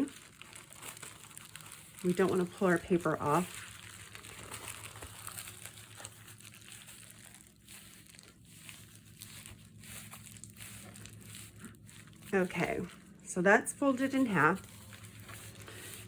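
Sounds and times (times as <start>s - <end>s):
crinkling and rustling of notebook cover: 0.0s - 16.0s.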